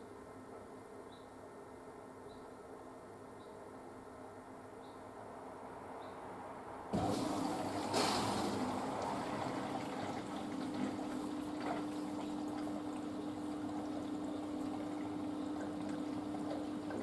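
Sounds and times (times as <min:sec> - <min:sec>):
washing machine hum: 0:06.9 - 0:17.0
water rushing and pouring: 0:06.9 - 0:17.0.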